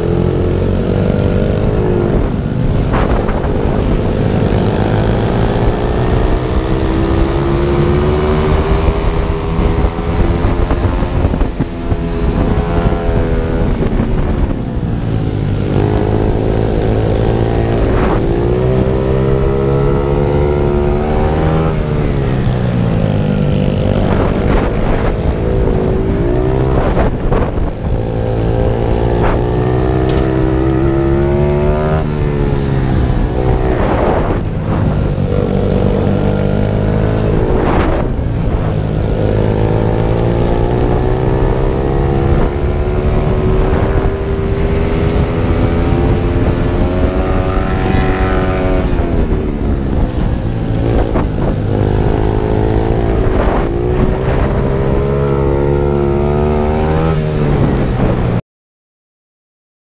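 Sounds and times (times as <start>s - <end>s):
pit bike engine revving: 0.0s - 58.2s
wind on microphone: 0.0s - 58.4s.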